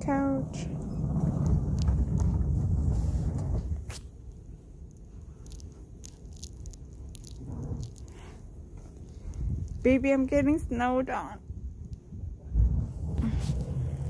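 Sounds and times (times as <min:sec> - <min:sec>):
sofa scraping over snow: 0:00.5 - 0:03.9, 0:12.6 - 0:14.0.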